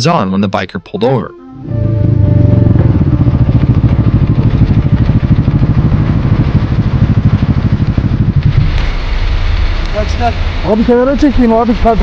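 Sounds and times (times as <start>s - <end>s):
motorcycle engine idling: 1.7s - 9.2s.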